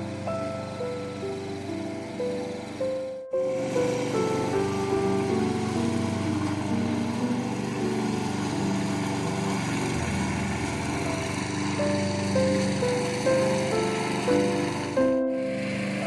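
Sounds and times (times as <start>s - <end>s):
background music: 0.0s - 16.0s
small engine running: 0.0s - 16.0s.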